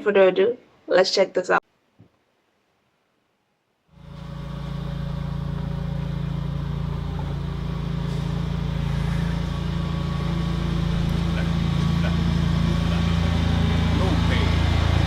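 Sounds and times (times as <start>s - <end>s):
low droning hum: 4.0s - 15.0s.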